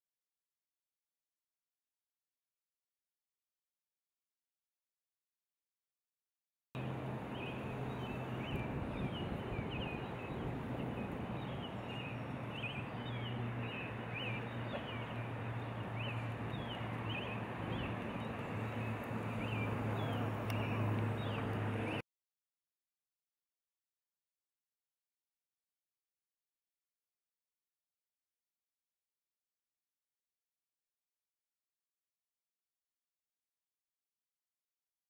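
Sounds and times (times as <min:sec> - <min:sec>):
steady rushing noise: 0:06.8 - 0:22.0.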